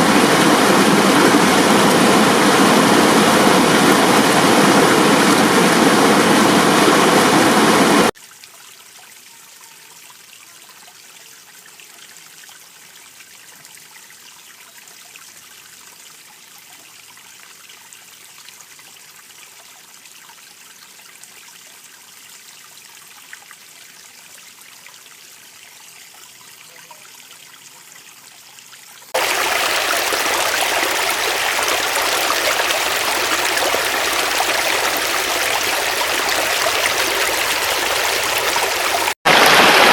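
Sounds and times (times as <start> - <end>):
stream water rushing: 0.0 - 8.1, 29.2 - 39.9.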